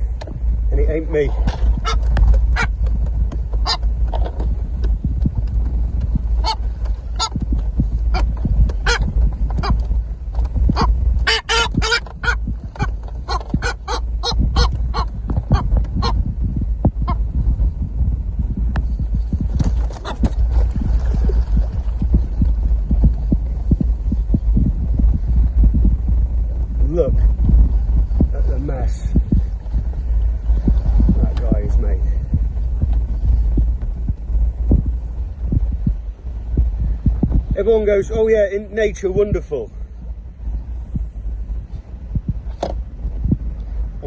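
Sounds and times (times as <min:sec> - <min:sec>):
soft irregular thumps: 0:00.0 - 0:37.7
low rumble: 0:00.0 - 0:44.0
seabird squawking: 0:01.8 - 0:02.8, 0:03.6 - 0:03.9, 0:06.4 - 0:07.4, 0:08.1 - 0:09.8, 0:10.7 - 0:16.2.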